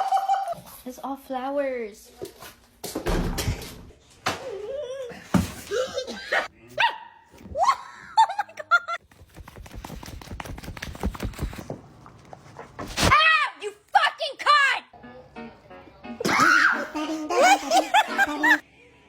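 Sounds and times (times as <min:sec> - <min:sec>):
rapid clicks: 0:09.1 - 0:11.7.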